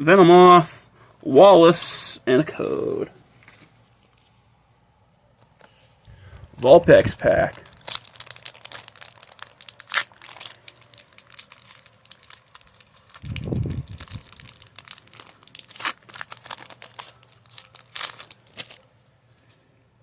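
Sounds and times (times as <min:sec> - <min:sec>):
wrapper crinkling and tearing: 0:06.4 - 0:18.9.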